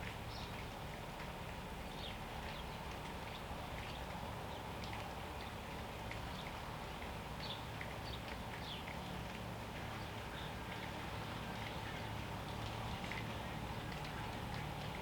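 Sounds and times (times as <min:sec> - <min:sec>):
small birds chirping: 0:07.4 - 0:09.0.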